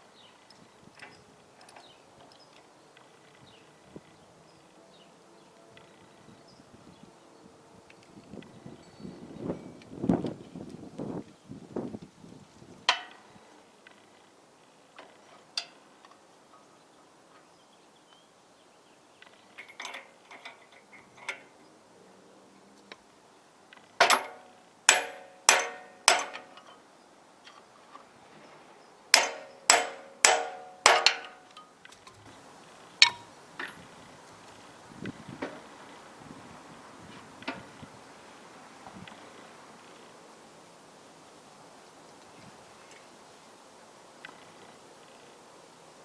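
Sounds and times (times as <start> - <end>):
hammer striking metal: 24.0 - 26.6, 29.2 - 31.6
metal parts clinking: 24.0 - 26.8, 29.2 - 32.2.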